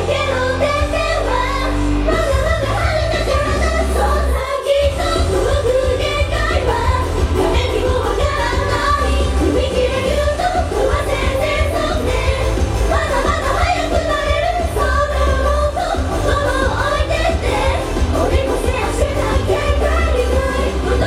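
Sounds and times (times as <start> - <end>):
group singing pop song live: 0.0 - 21.0
heavy bass beat: 4.8 - 21.0.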